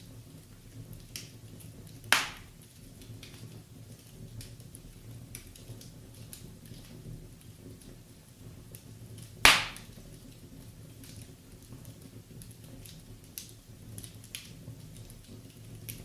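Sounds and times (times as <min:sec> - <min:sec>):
wood fire crackling: 0:00.0 - 0:16.0
loud pop of fire: 0:02.0 - 0:02.6, 0:09.3 - 0:10.1.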